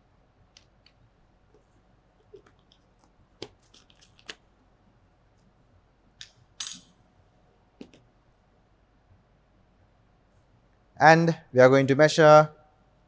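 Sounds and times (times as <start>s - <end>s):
glassware clinking: 6.6s - 6.9s.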